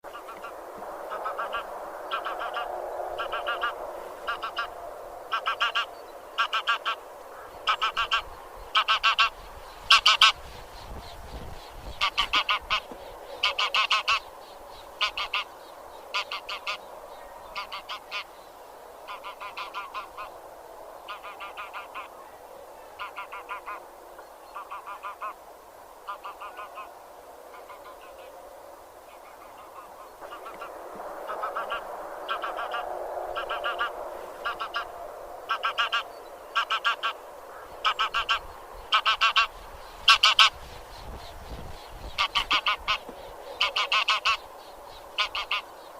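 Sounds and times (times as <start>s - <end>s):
geese honking: 0.1s - 10.4s, 12.0s - 14.3s, 15.0s - 15.5s, 16.1s - 16.9s, 17.6s - 18.3s, 19.1s - 20.3s, 21.1s - 22.3s, 23.0s - 23.8s, 24.6s - 25.4s, 26.0s - 26.9s, 29.3s - 32.8s, 33.4s - 40.6s, 42.1s - 44.5s, 45.2s - 45.7s.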